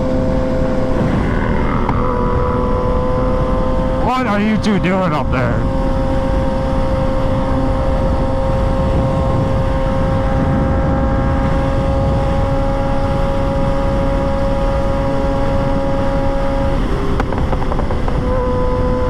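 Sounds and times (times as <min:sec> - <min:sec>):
wind rush on microphone: 0:05.6 - 0:19.0.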